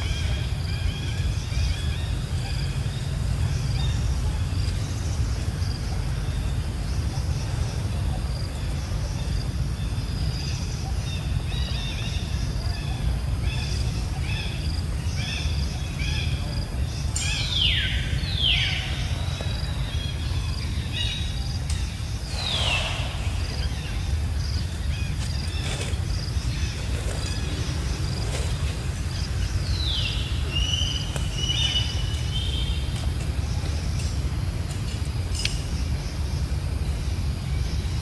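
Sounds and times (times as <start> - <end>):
steady low rumble: 14.6 - 38.0
whistled calls sliding down: 22.2 - 25.9
animal chirps: 22.3 - 24.1.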